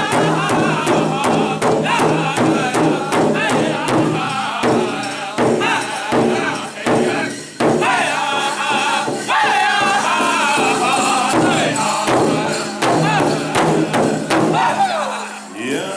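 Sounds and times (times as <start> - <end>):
large drum beating: 0.0 - 8.4, 10.6 - 15.0
group singing in wavering voices: 0.0 - 15.9.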